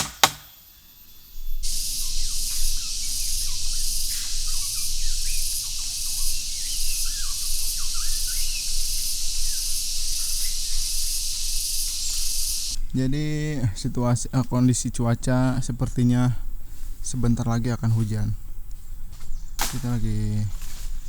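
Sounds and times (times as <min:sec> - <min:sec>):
shrill insect chorus: 0:00.0 - 0:21.0
birds whistling short calls: 0:00.6 - 0:12.8.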